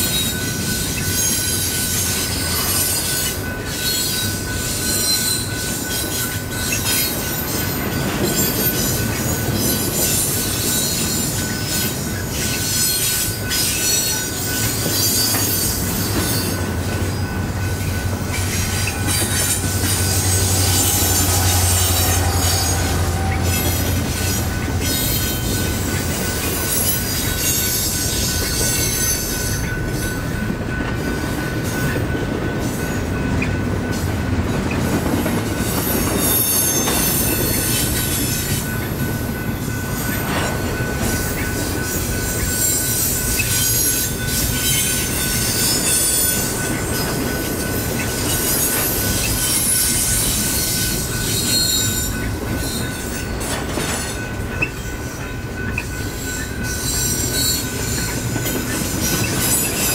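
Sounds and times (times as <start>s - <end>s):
steel wheels squealing: 0.0s - 30.2s, 35.6s - 38.8s, 39.4s - 59.9s
freight train rumble: 0.0s - 59.9s
wheels clacking over rails: 29.9s - 59.9s.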